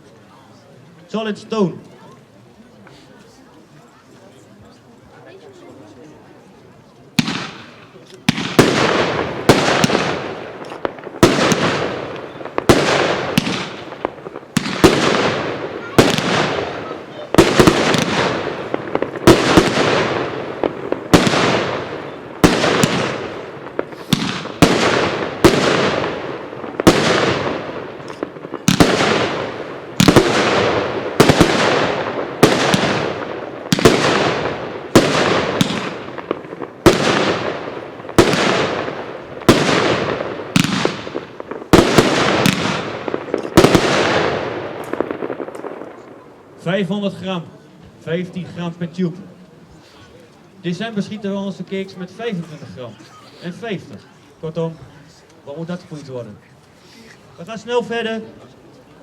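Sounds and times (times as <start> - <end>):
firework bangs: 7.1 - 46.7.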